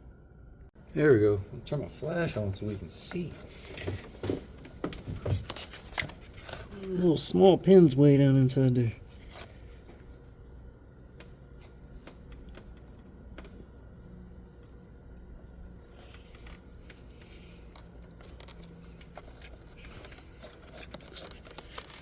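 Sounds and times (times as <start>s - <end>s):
low steady hum: 0.0s - 22.0s
faint ticks and handling noises: 2.0s - 22.0s.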